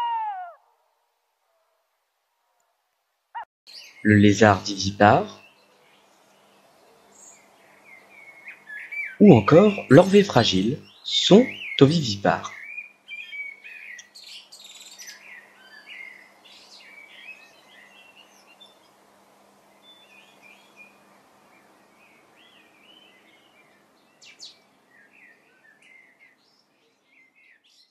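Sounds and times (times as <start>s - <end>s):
birds chirping and singing: 0.0s - 0.6s, 7.2s - 18.8s.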